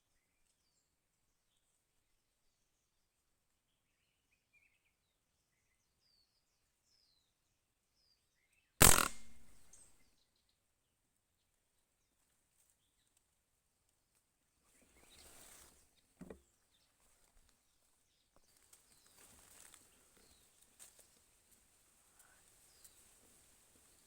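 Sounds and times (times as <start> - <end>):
short sharp knock: 8.8 - 9.6.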